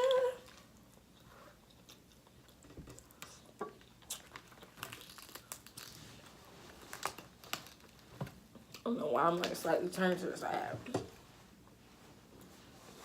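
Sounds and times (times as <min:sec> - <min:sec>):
chewing and handling food: 0:00.4 - 0:08.9.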